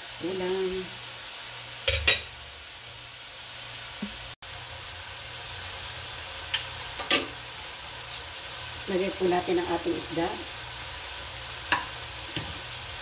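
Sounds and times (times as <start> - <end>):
vegetables sizzling in a wok: 0.0 - 13.0.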